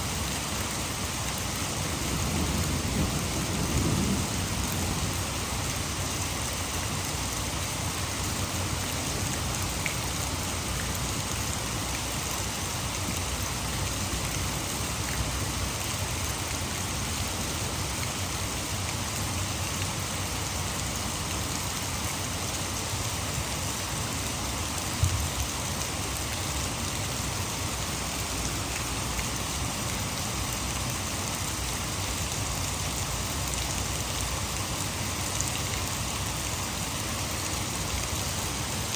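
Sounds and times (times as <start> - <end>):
rushing water at a dam: 0.0 - 2.8, 4.3 - 38.9
heavy rain hissing: 0.0 - 38.9.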